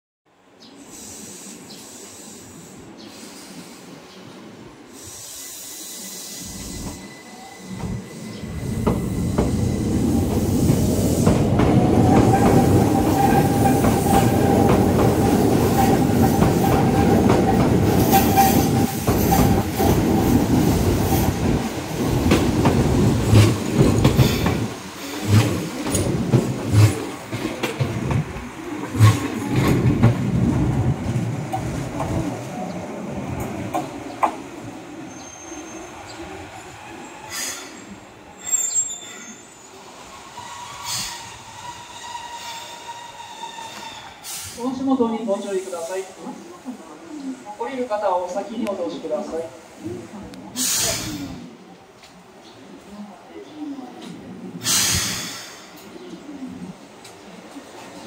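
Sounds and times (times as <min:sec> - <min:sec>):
electric train passing: 0:00.8 - 0:49.9
train wheels squealing: 0:05.0 - 0:11.4, 0:12.0 - 0:21.4, 0:35.0 - 0:44.6.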